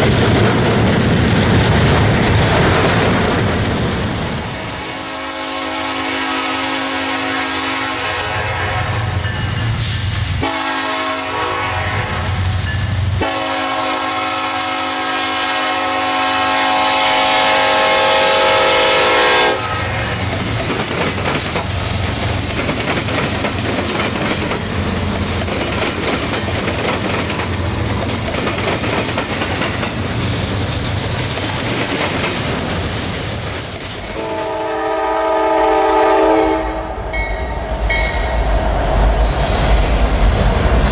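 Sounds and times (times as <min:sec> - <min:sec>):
train wheels clattering on rails: 0:00.0 - 0:05.3, 0:20.1 - 0:40.9
locomotive air horn blasts: 0:05.3 - 0:09.0, 0:10.4 - 0:12.3, 0:13.2 - 0:19.9, 0:33.8 - 0:39.2.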